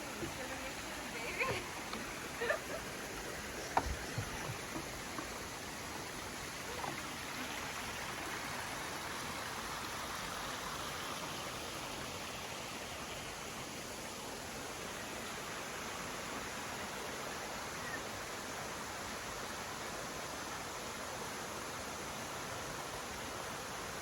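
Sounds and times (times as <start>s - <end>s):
mountain stream rushing: 0.0s - 24.0s.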